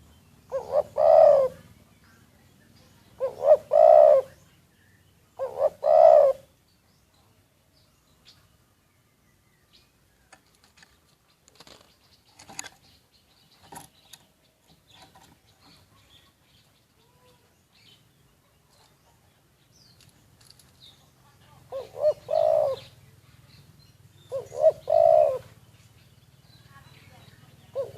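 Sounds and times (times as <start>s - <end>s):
dove cooing: 0.0s - 1.8s, 3.0s - 4.5s, 5.3s - 6.5s, 21.5s - 23.6s, 24.2s - 25.7s, 27.6s - 27.9s
rustles: 9.7s - 27.9s.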